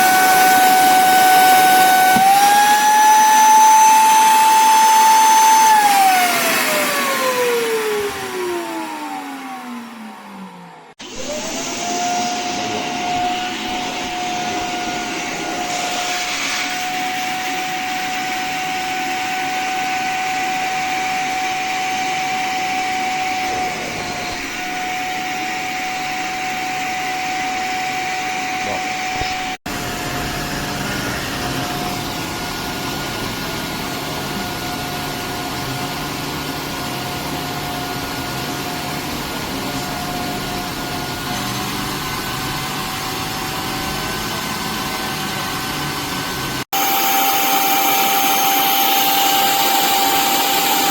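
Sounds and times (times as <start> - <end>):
vacuum cleaner motor whine: 0.0 - 50.9
rush of suction air: 11.0 - 17.7.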